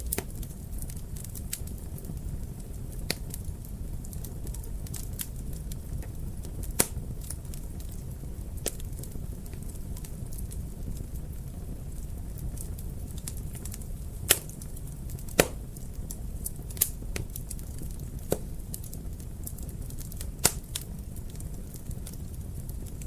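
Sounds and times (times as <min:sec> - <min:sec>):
wood fire crackling: 0:00.0 - 0:23.0
sharp fire pops: 0:06.0 - 0:08.0, 0:13.1 - 0:23.0.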